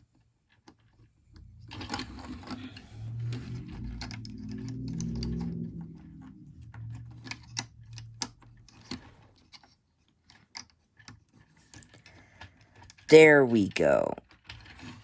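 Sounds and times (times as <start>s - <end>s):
low hum: 1.3s - 9.2s
plastic toy parts clicking: 6.9s - 13.1s, 14.2s - 15.0s.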